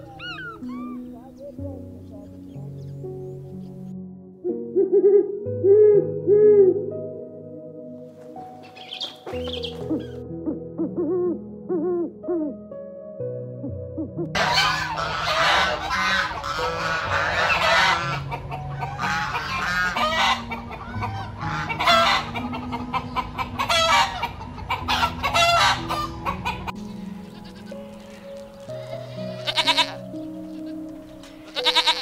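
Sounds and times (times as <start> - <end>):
piano music: 0.0 - 32.0
roosters crowing: 14.4 - 27.7
geese honking: 14.4 - 32.0
hens clucking: 14.4 - 32.0
goat call: 28.8 - 30.8, 31.5 - 32.0.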